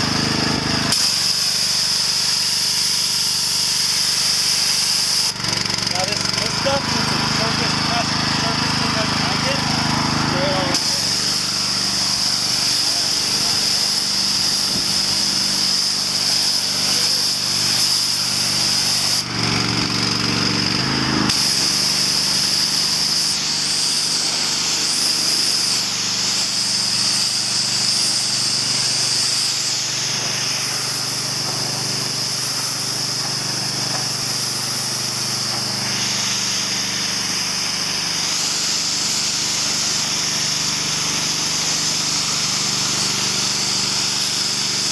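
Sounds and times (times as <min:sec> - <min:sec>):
high-pressure water spray hiss: 0:00.0 - 0:20.2, 0:21.3 - 0:44.9
small petrol engine droning: 0:00.0 - 0:44.9.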